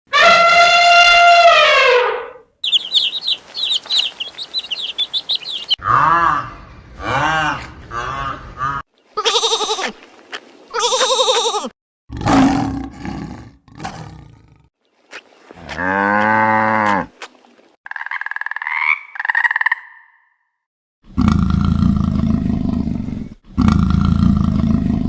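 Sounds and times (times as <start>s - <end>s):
wavering high animal calls: 0.2s - 6.0s, 9.1s - 10.0s
rasping animal calls: 2.6s - 12.5s, 14.9s - 19.8s
long deep animal call: 21.1s - 25.0s.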